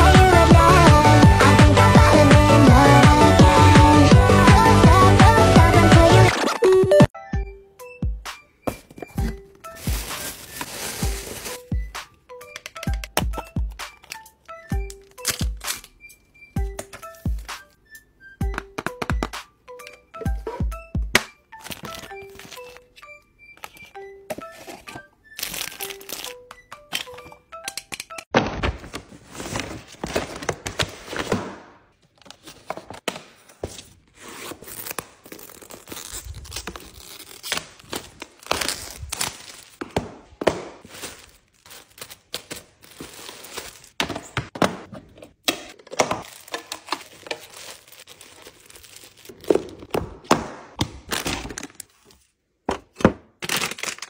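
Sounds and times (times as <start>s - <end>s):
plastic packaging crinkling and tearing: 9.8s - 11.6s, 25.4s - 26.4s, 34.6s - 39.8s, 40.8s - 44.0s, 46.2s - 49.9s, 53.4s - 54.0s
plastic items tapping and clacking: 43.9s - 52.0s.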